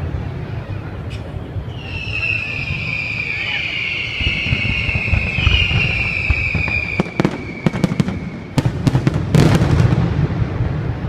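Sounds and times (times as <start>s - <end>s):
fireworks cracking: 1.2s - 11.0s
high falling whistle: 1.7s - 8.6s.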